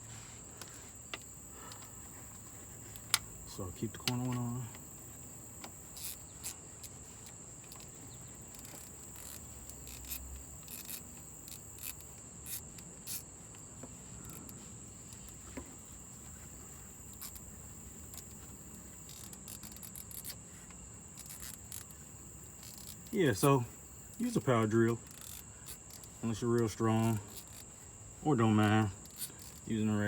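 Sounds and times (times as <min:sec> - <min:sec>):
hand ratchet clicking: 0:02.8 - 0:30.0.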